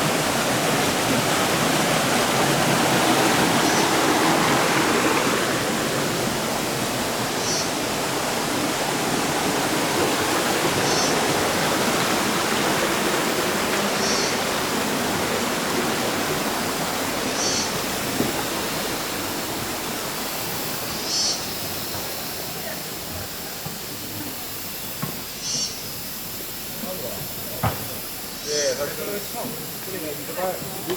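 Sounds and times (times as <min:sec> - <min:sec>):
water rushing over rocks: 0:00.0 - 0:24.0.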